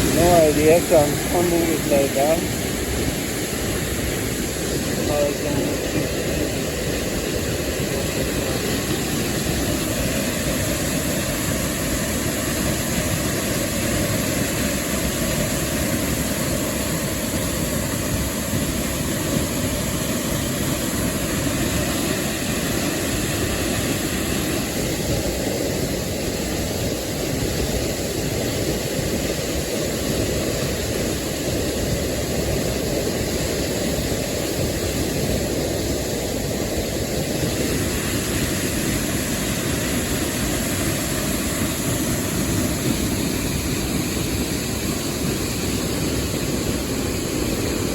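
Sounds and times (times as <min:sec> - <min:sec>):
waterfall roaring: 0:00.0 - 0:47.9.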